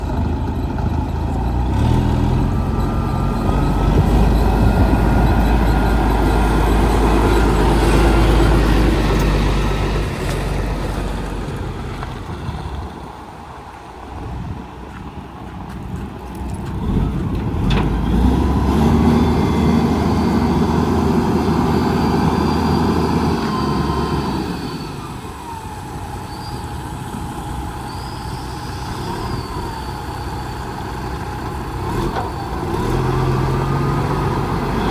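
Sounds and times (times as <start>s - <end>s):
diesel truck engine running: 0.0s - 34.9s.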